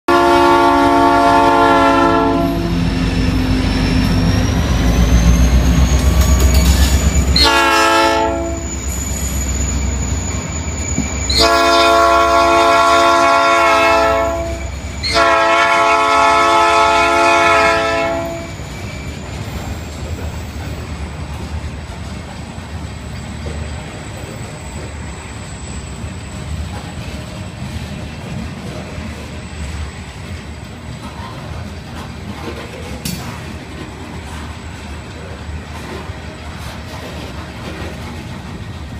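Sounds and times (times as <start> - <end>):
locomotive air horn blasts: 0.1 - 3.0, 7.0 - 8.9, 11.3 - 18.6
train cars rolling on rails: 0.1 - 38.9.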